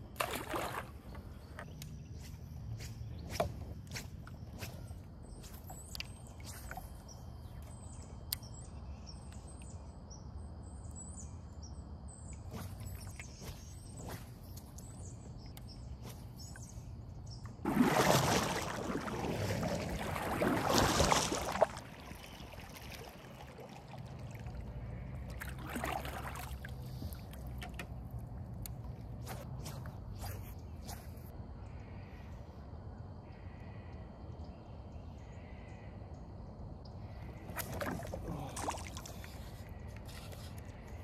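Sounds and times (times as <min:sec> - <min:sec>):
birds chirping: 0:00.5 - 0:17.6
paddle swishing through water: 0:17.6 - 0:28.0, 0:37.5 - 0:40.7.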